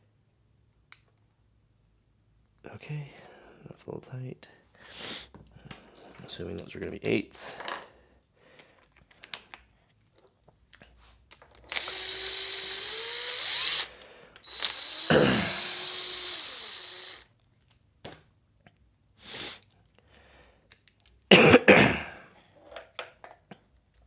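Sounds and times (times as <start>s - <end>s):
tools clicking: 11.4s - 17.2s
power drill running: 11.7s - 17.3s.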